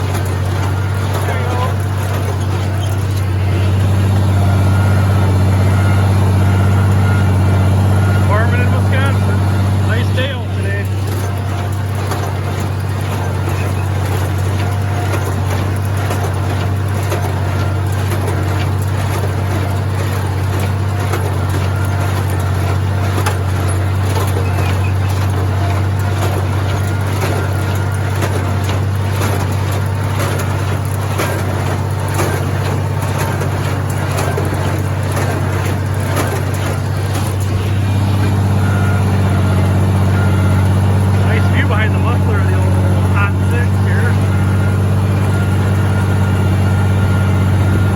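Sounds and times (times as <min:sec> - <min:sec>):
clattering baler machinery: 0:00.0 - 0:47.9
tractor engine running under load: 0:00.0 - 0:47.9.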